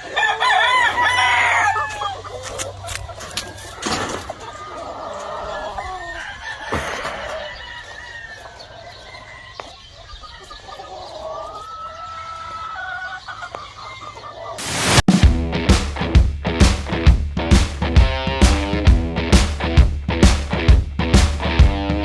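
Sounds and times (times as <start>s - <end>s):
roosters crowing: 0.0s - 2.5s, 4.4s - 9.7s
hens clucking: 0.0s - 14.6s
brief rushing noises: 14.6s - 18.7s.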